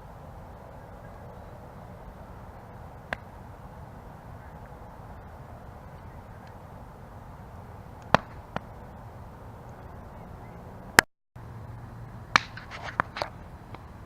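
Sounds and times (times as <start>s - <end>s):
campfire flames rushing: 0.0s - 10.1s
fire crackling pops: 2.4s - 10.0s, 12.3s - 13.9s.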